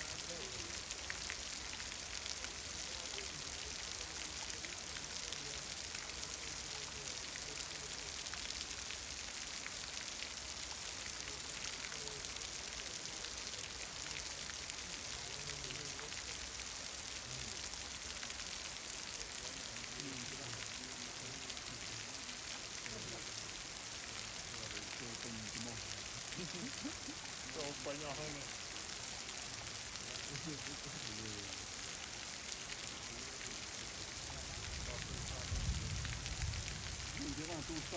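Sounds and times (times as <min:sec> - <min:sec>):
raindrops ticking on surfaces: 0:00.0 - 0:37.9
heavy rain falling: 0:12.9 - 0:37.9.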